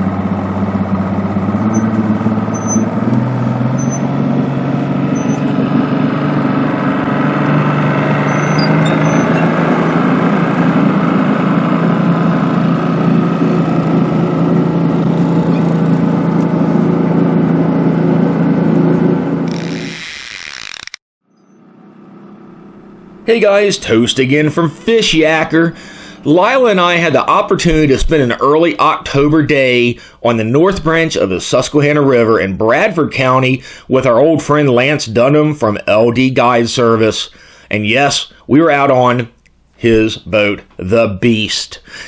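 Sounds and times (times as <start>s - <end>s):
motorboat engine running: 0.0s - 20.8s, 21.4s - 28.3s.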